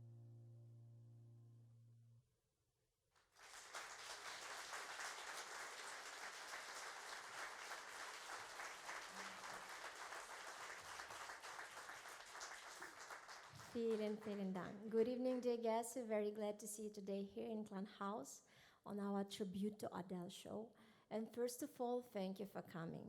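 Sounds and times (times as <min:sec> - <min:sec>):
audience applauding: 0:03.3 - 0:14.4.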